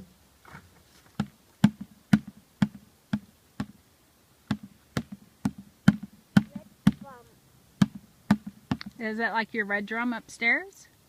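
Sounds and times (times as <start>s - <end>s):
child beating a drum: 1.2s - 3.8s, 4.5s - 8.9s.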